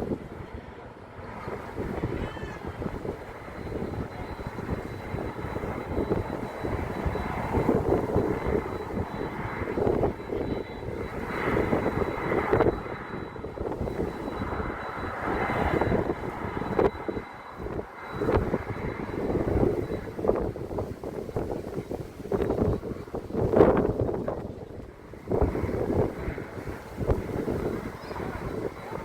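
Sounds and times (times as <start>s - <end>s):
airliner engines rumbling: 0.0s - 29.0s.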